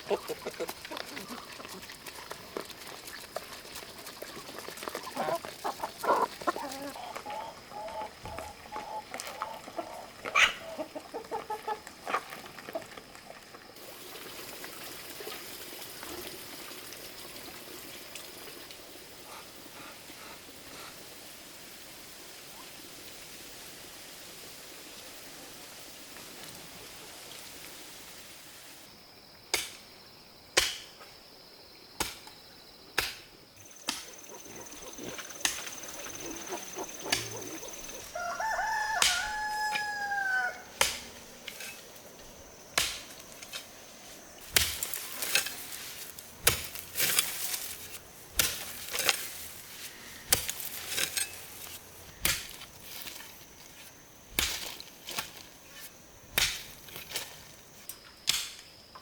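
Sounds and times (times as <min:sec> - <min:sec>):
rooster crowing: 0:38.0 - 0:40.8.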